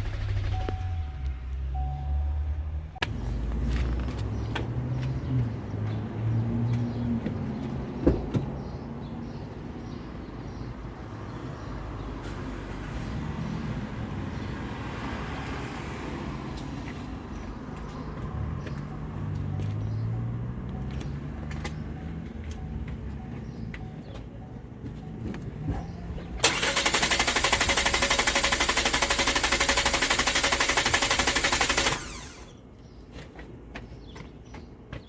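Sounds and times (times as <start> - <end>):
car engine rumbling: 0.0 - 7.3, 18.0 - 32.5.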